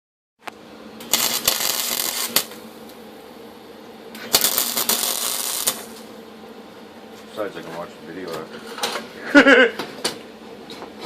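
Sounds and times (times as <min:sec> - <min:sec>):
welding arc crackling and buzzing: 0:00.4 - 0:06.2
welder hum: 0:00.4 - 0:07.0.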